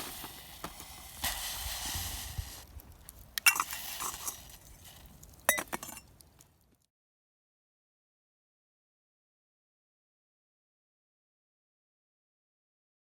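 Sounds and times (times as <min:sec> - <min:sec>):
soft hiss: 0:00.0 - 0:06.5
metal cookware clinking: 0:05.5 - 0:06.0.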